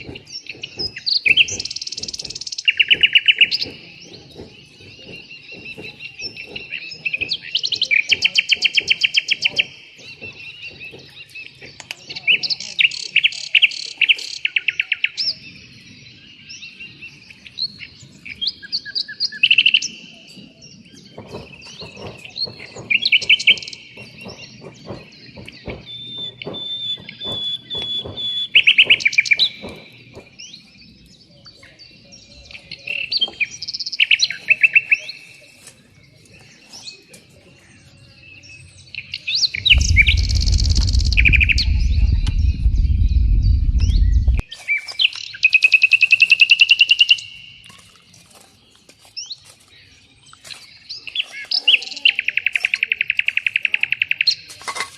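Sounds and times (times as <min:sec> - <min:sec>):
songbirds chirping and trilling: 0:00.0 - 0:54.9
loud low rumble: 0:39.6 - 0:44.5.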